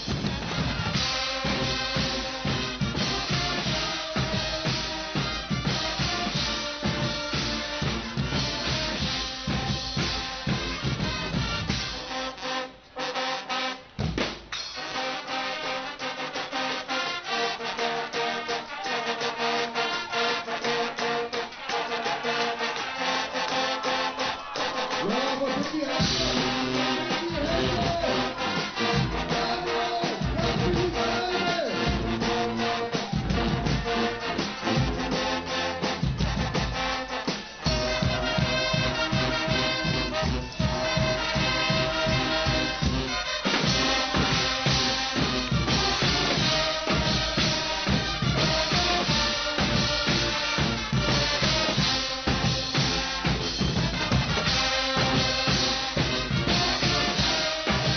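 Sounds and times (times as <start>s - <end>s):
brass band with drums: 0.0s - 57.9s
trumpets and trombones: 0.0s - 57.9s.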